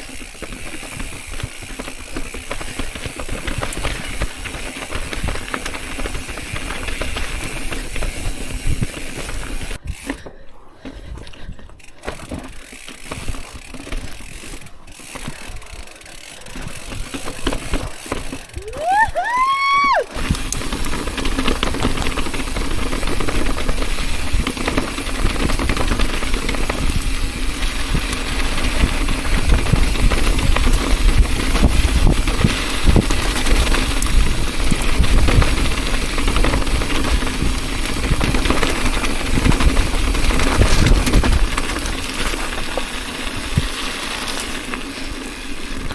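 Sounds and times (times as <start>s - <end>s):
bicycle tyre noise on rocks: 0.0s - 45.9s
wind rumbling on microphone: 1.0s - 10.2s, 18.5s - 43.9s.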